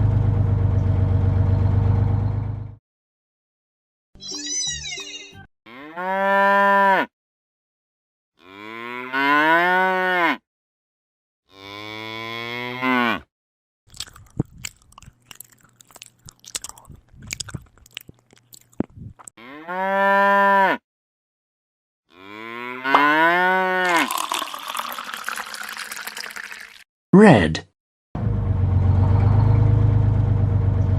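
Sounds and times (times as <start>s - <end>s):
cow mooing: 5.7s - 7.1s, 8.4s - 10.4s, 11.5s - 13.3s, 19.4s - 20.8s, 22.1s - 24.0s
clicking and crunching: 13.9s - 19.3s.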